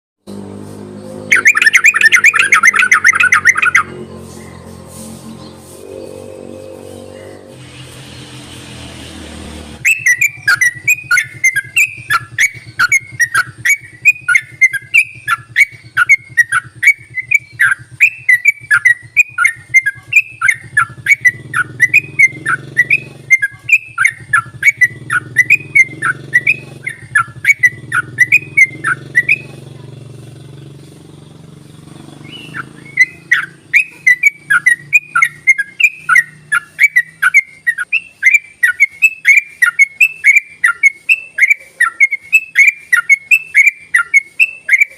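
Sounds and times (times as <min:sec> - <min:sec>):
bird singing chattering whistles: 0:01.0 - 0:07.6, 0:09.8 - 0:44.9
steady low hum: 0:02.2 - 0:35.8.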